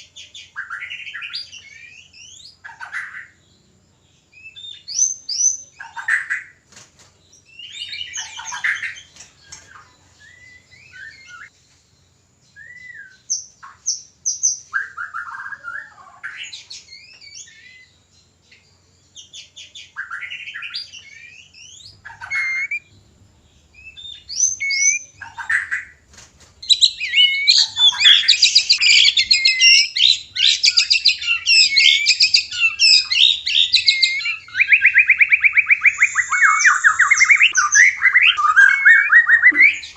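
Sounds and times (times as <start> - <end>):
birds whistling and chattering: 0.0 - 39.9
rapid varied birdsong: 0.0 - 39.9.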